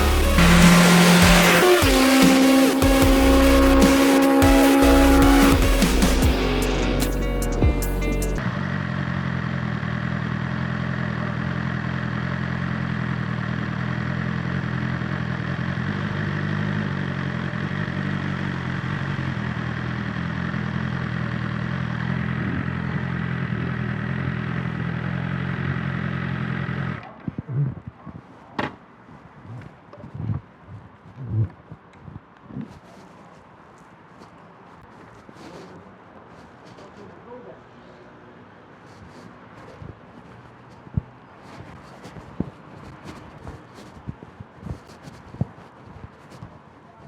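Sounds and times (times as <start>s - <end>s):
motorcycle engine idling: 0.0s - 27.1s.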